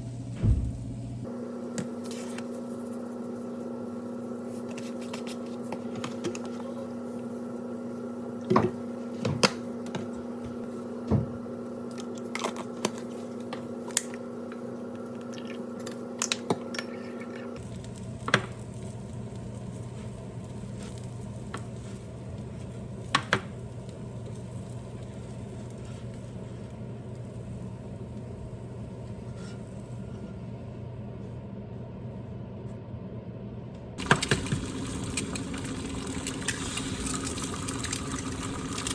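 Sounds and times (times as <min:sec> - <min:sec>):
steady background hum: 0:00.0 - 0:38.9.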